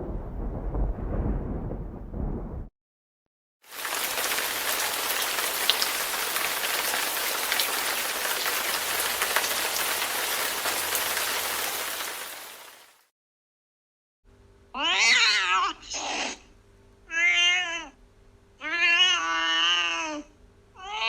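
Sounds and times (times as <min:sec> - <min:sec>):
low rumble: 0:00.0 - 0:02.7
single raindrops ticking: 0:03.7 - 0:12.8
steady rain hiss: 0:03.7 - 0:13.0.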